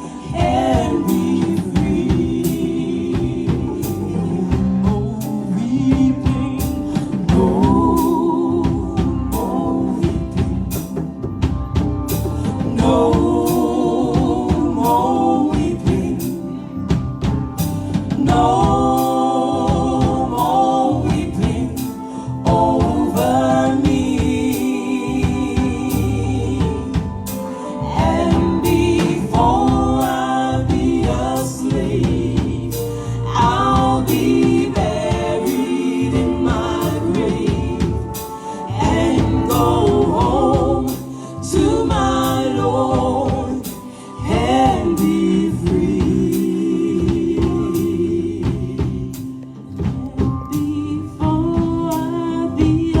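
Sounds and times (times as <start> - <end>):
band with steady beat: 0.0 - 53.0
voices singing gospel song: 0.0 - 53.0.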